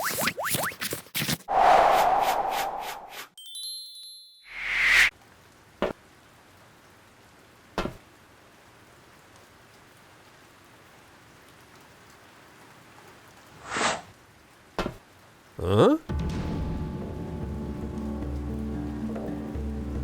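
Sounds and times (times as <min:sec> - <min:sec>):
loud swelling whoosh: 0:01.5 - 0:03.2
light rain hiss: 0:05.1 - 0:20.0.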